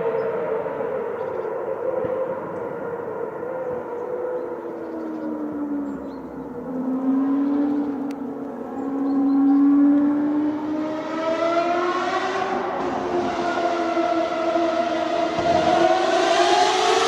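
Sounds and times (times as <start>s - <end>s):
race car engine high revs: 8.7s - 17.0s.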